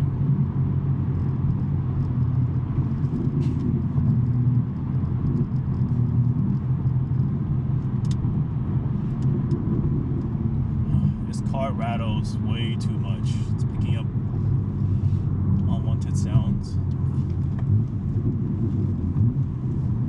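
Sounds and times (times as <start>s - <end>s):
car engine droning at cruise: 0.0s - 20.0s.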